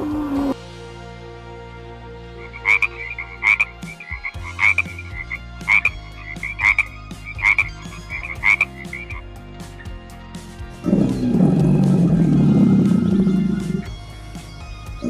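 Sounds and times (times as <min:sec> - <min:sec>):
frog croaking: 0:02.4 - 0:09.9.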